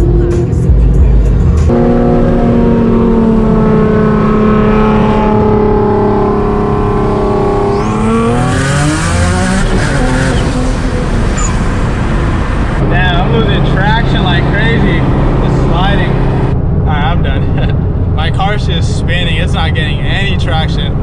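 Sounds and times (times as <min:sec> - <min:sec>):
car engine running under load: 0:00.0 - 0:16.8.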